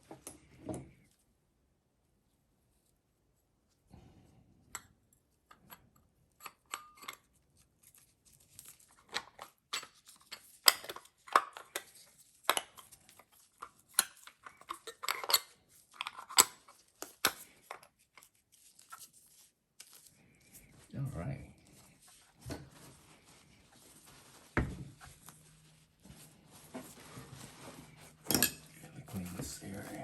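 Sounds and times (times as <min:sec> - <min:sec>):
metal tools scraping: 0:27.7 - 0:30.0.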